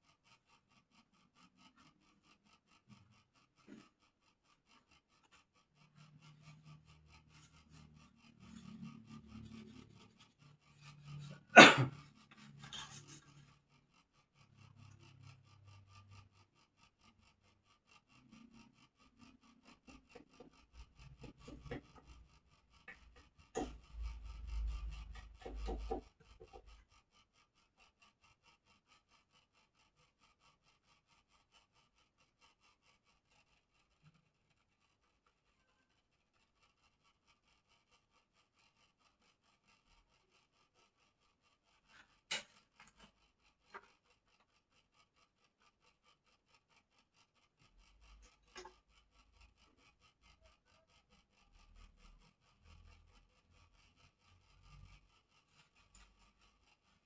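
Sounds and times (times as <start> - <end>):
rubbing and scraping: 5.2 - 13.5.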